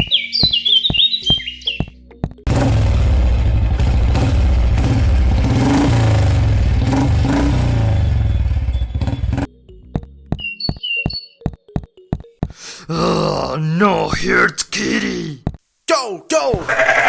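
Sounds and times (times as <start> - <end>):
engine revving: 2.5 - 9.5.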